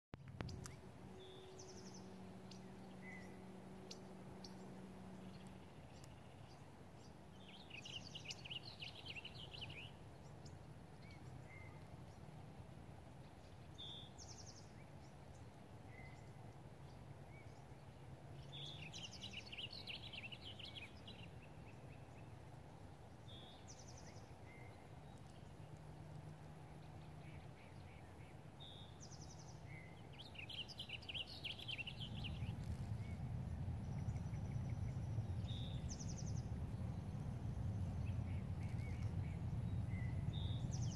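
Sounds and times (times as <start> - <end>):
faint low rumble: 0.2 - 40.9
bird singing chirpy phrase: 0.4 - 6.7, 7.3 - 10.0, 18.4 - 22.3, 26.9 - 40.9.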